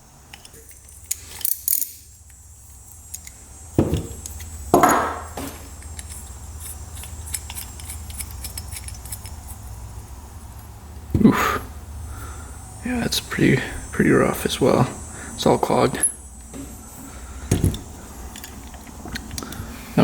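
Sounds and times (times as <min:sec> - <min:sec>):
low steady hum: 0:00.0 - 0:20.0
metal parts clattering: 0:00.3 - 0:02.2, 0:04.8 - 0:09.5
metal parts clicking and clinking: 0:00.3 - 0:03.4, 0:04.0 - 0:09.6, 0:17.5 - 0:19.5.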